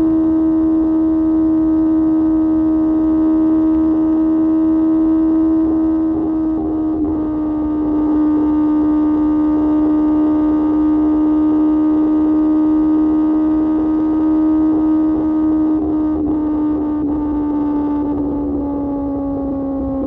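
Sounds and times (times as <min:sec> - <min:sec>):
motorcycle engine at steady revs: 0:00.0 - 0:20.0.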